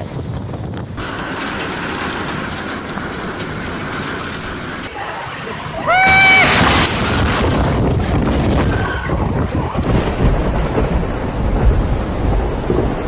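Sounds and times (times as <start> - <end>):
storm wind and rain rushing: 0.0 - 13.0
low rumble: 6.1 - 13.0.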